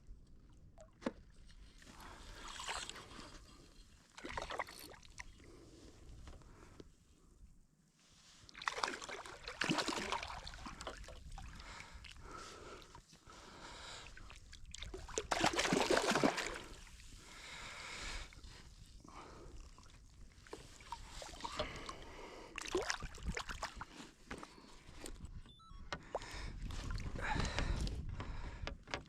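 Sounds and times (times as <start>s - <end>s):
water sloshing and splashing: 0.6s - 5.4s, 8.5s - 12.3s, 14.2s - 17.2s, 19.6s - 25.2s.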